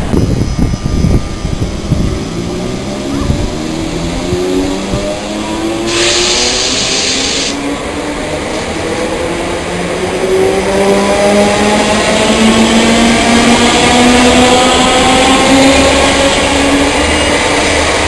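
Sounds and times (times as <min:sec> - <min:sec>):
train motor whine rising: 0:00.0 - 0:18.0
loud air hiss: 0:05.8 - 0:07.6.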